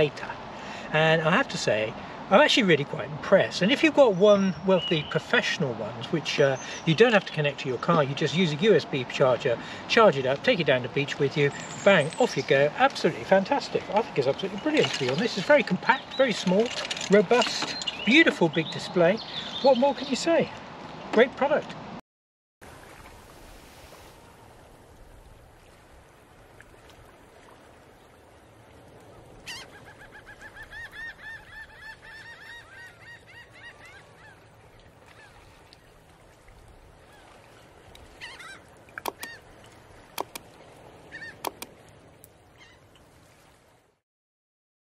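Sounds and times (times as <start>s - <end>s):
birds calling: 3.7s - 5.4s, 6.3s - 7.0s, 11.1s - 20.5s, 29.1s - 36.0s, 37.0s - 41.8s, 42.5s - 42.9s.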